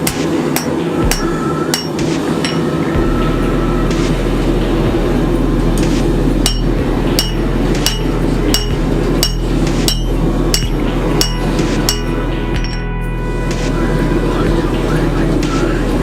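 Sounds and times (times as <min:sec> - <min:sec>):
hammer striking steel on anvil: 0:00.0 - 0:02.8, 0:06.4 - 0:13.0
low drone: 0:00.0 - 0:16.0.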